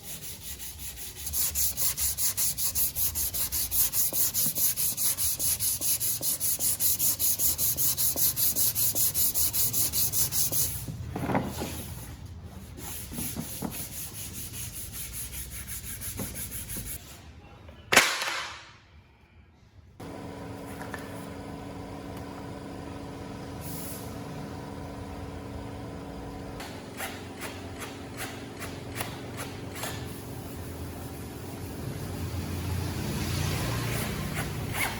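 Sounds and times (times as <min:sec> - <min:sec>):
sanding strokes: 0:00.0 - 0:10.8, 0:12.6 - 0:17.0, 0:33.4 - 0:34.9
steady machine hum: 0:20.0 - 0:27.0.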